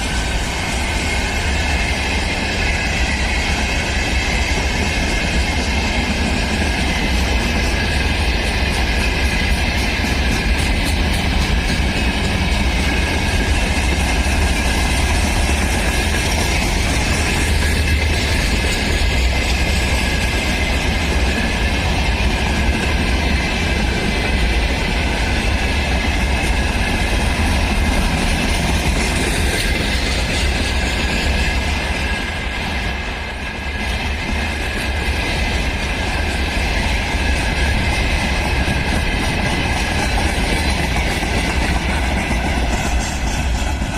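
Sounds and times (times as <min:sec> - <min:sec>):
freight train rolling past: 0:00.0 - 0:43.9.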